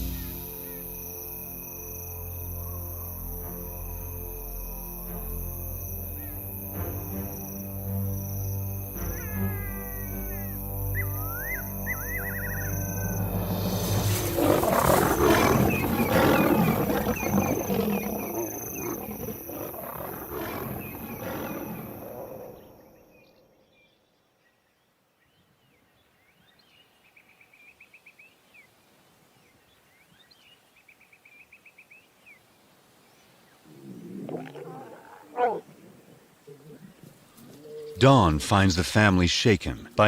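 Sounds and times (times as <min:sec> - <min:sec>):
lions snarling and roaring: 0:11.0 - 0:23.1, 0:33.6 - 0:38.4.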